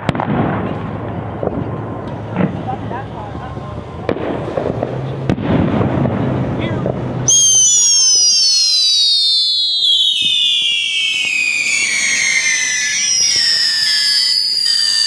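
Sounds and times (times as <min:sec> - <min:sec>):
fireworks popping and crackling: 0:00.0 - 0:15.0
whistling fireworks shrieking: 0:07.3 - 0:15.0.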